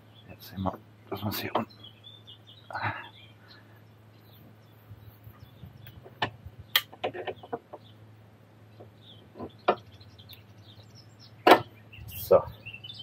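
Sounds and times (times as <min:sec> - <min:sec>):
metallic clicks and knocks: 0:05.8 - 0:07.9.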